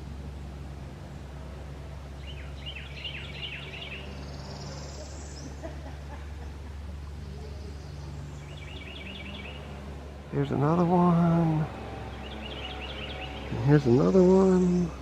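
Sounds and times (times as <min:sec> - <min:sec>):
low outdoor rumble: 0:00.0 - 0:15.0
songbird chirping: 0:00.0 - 0:15.0
high bird trill: 0:02.2 - 0:05.7, 0:07.5 - 0:15.0.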